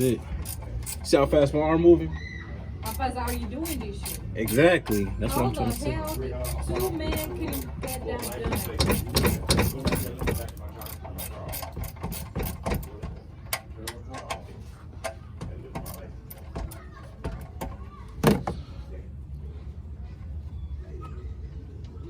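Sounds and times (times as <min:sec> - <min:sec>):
ratchet wrench clicking: 0:00.0 - 0:01.4, 0:02.8 - 0:13.6.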